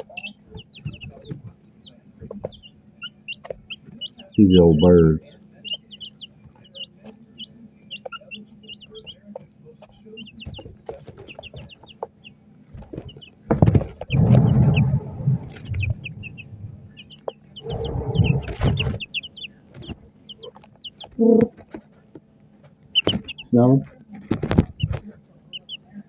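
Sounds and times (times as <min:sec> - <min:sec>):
young chickens peeping: 0:00.0 - 0:26.0
rustling noise: 0:17.6 - 0:19.1.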